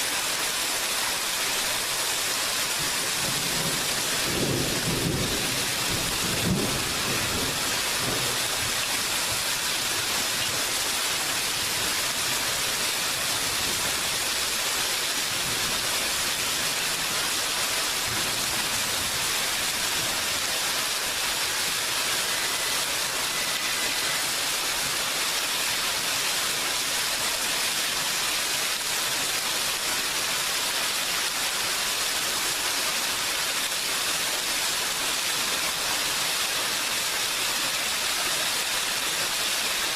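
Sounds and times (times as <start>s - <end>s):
heavy rain: 0.0s - 39.9s
low thunder rumble: 3.2s - 8.7s.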